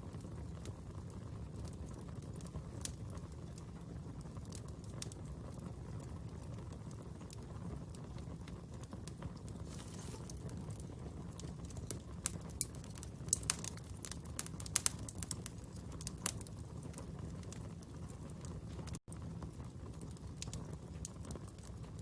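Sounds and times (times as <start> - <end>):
fire burning low rumble: 0.0 - 22.0
fire crackles and pops: 0.0 - 22.0.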